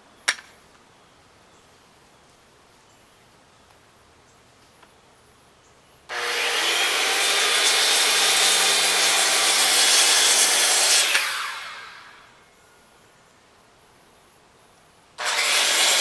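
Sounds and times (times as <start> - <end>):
circular saw cutting wood: 6.1 - 12.3, 15.2 - 16.0.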